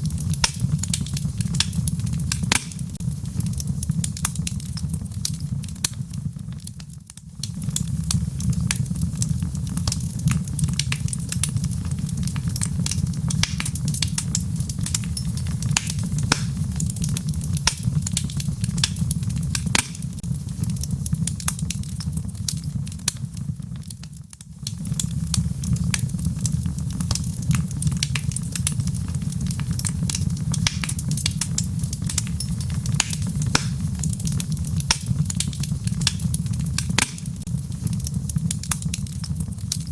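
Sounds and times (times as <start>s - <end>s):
log fire crackling and popping: 0.0s - 39.9s
low rumble of flame: 0.0s - 39.9s.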